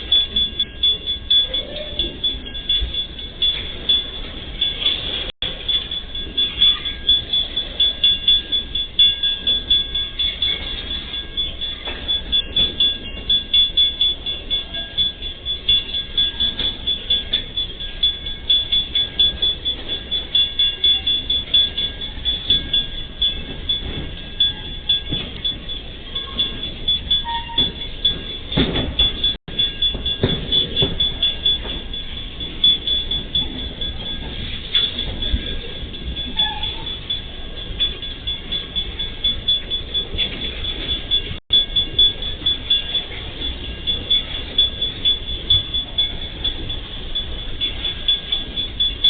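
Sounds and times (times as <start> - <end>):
steady high-pitched tone: 0.0 - 49.0.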